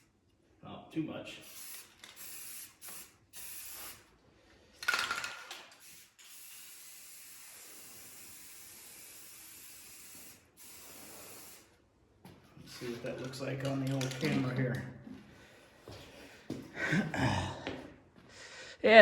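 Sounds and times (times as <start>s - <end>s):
spray paint can spraying: 1.4s - 4.1s, 4.8s - 11.8s.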